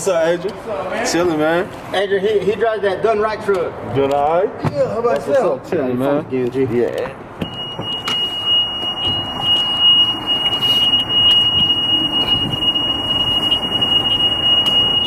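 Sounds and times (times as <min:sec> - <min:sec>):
low background noise: 0:00.0 - 0:15.0
high-pitched electronic tone: 0:07.4 - 0:15.0.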